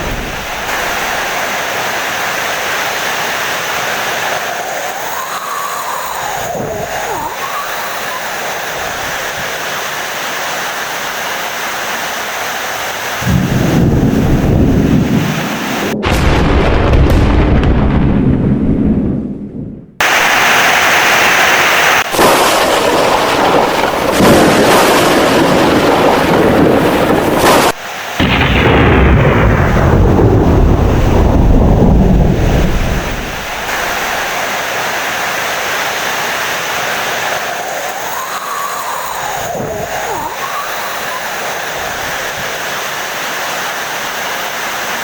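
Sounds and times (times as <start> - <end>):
thunder rumbling: 0.0 - 9.5, 13.2 - 21.1, 22.0 - 35.0
heavy rain: 0.0 - 17.7, 20.0 - 45.0.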